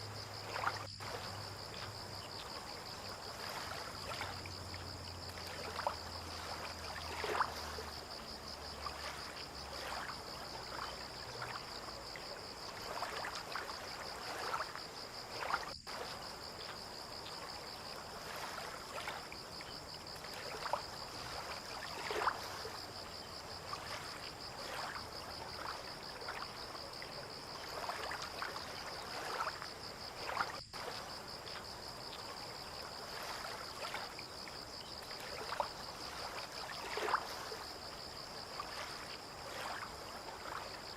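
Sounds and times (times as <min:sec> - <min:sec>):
insects chirring: 0:00.0 - 0:40.9
water lapping and splashing: 0:00.0 - 0:40.9.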